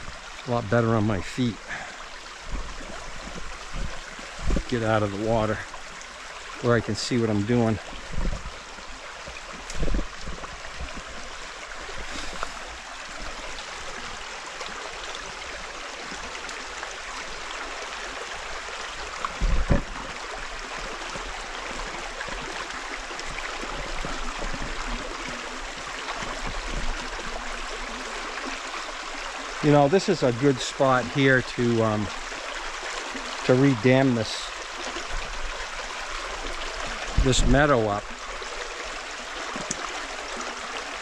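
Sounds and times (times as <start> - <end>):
water rushing over stones: 0.0 - 41.0
low thump: 19.4 - 20.0.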